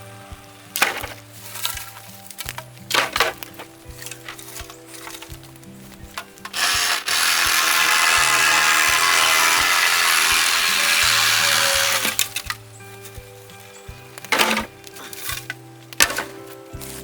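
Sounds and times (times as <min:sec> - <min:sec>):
electric chainsaw cutting bamboo: 0:00.0 - 0:05.4, 0:06.1 - 0:12.6.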